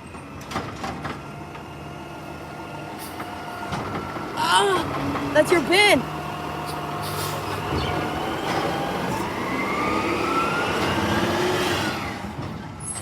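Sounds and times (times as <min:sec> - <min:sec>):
garbage truck engine revving: 0:00.5 - 0:13.0.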